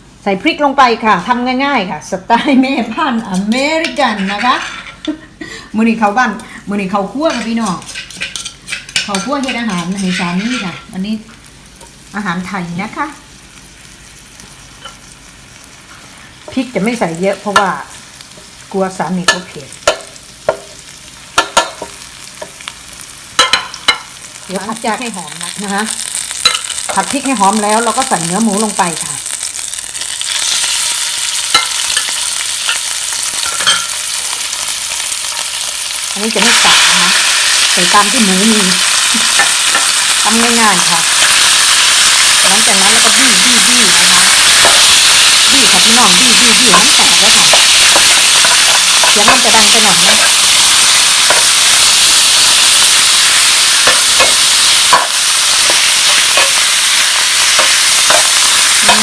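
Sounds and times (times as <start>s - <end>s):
spatula scraping and tapping pan: 7.2s - 10.9s
meat sizzling in hot oil: 7.3s - 59.0s.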